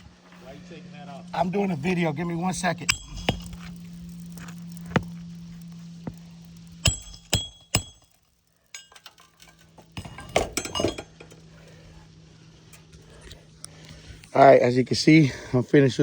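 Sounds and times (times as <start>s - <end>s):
metal hand tools clinking: 6.8s - 11.4s.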